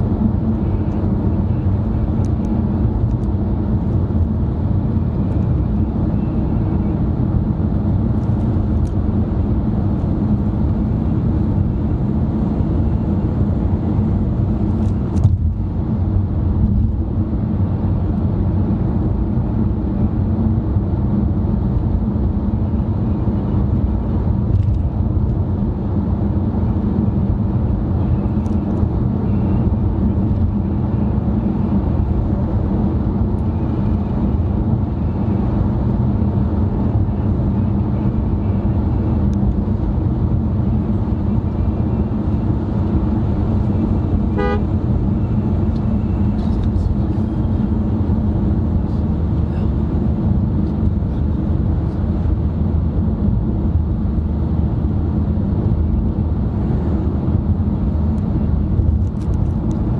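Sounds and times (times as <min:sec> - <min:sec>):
car cabin road and engine noise: 0:00.0 - 0:59.9.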